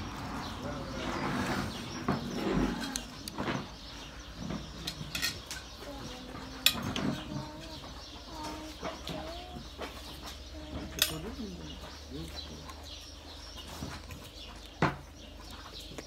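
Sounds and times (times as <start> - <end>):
farmyard birds calling: 0.0 - 16.0.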